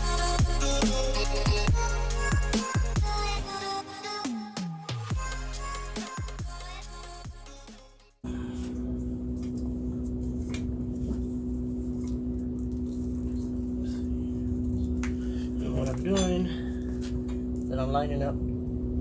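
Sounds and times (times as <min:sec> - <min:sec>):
steady hum: 0:00.0 - 0:04.0, 0:05.1 - 0:19.0.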